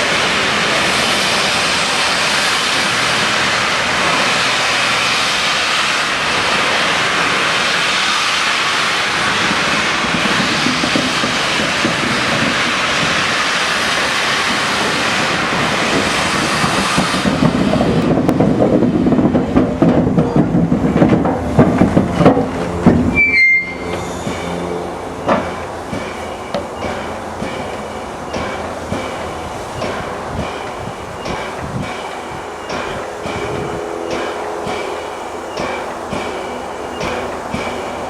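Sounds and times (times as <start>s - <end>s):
steam hissing: 0.0s - 38.0s
locomotive knocking and rumbling: 9.2s - 38.0s.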